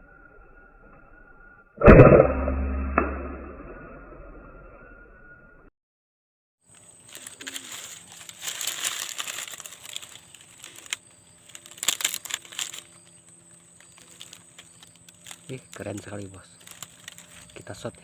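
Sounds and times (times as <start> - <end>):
faint high whine: 0.0 - 5.7
rustling and crinkling: 6.7 - 18.0.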